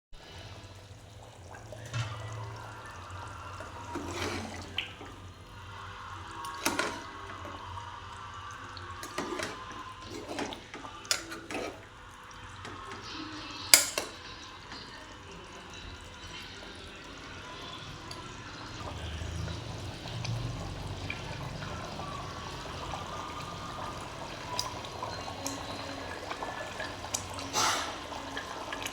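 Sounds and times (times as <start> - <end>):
water running and splashing: 0.2 - 28.9
utensils knocking and clinking: 13.8 - 14.2.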